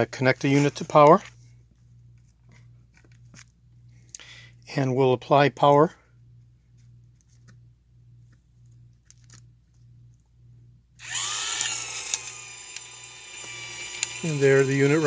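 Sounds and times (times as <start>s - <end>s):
faint low hum: 0.0s - 15.0s
electric motor whine: 11.0s - 15.0s.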